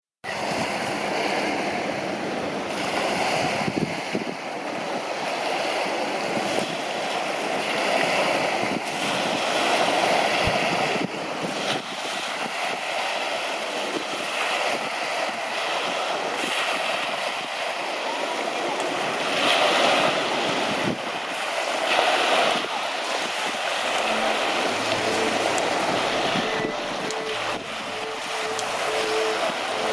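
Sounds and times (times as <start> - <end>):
sea waves rushing: 0.2 - 29.9
wind buffeting microphone: 0.3 - 5.1.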